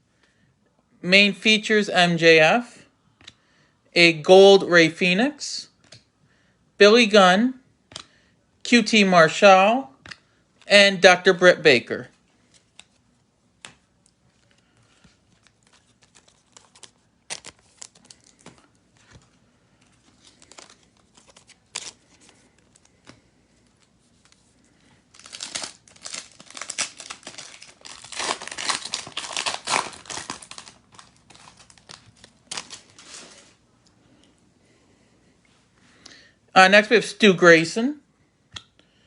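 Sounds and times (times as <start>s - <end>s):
cards clicking and tapping: 7.9s - 8.2s
foil wrapper crinkling and tearing: 15.3s - 19.2s, 25.1s - 33.4s.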